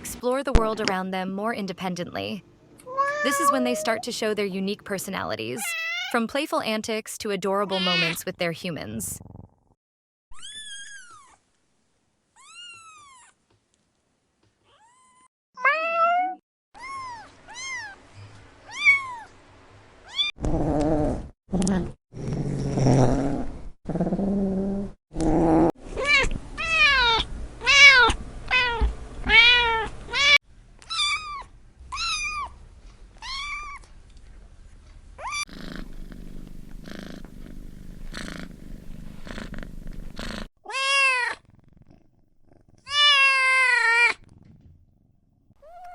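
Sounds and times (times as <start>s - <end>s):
kittens meowing: 2.8s - 4.1s, 40.7s - 41.5s, 42.8s - 44.2s
cat purring: 35.4s - 40.5s, 41.4s - 43.0s, 44.1s - 45.5s.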